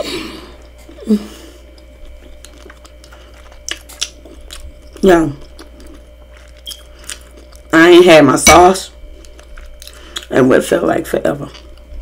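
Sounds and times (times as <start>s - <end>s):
person chewing: 0.0s - 7.8s, 9.0s - 10.3s.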